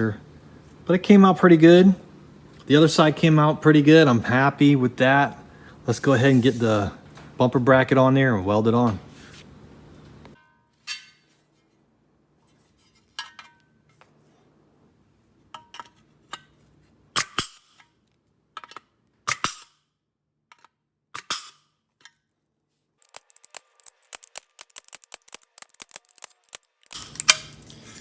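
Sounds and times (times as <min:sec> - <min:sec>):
metal parts clinking: 0:23.0 - 0:27.4.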